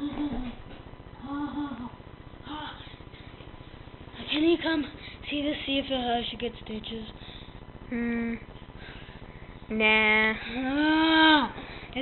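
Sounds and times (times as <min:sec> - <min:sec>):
child moaning: 0:01.2 - 0:02.8, 0:10.5 - 0:11.6.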